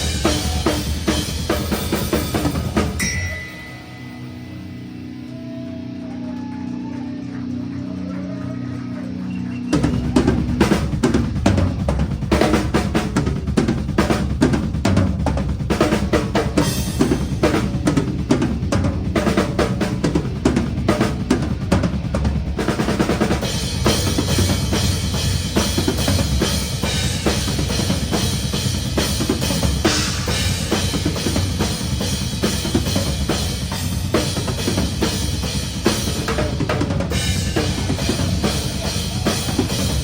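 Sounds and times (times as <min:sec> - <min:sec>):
cymbals: 0:00.0 - 0:07.6.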